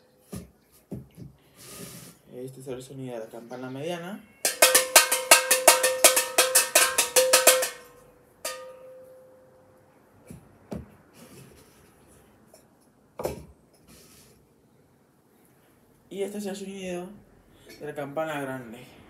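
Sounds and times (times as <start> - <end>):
bell ringing: 4.3 - 9.6.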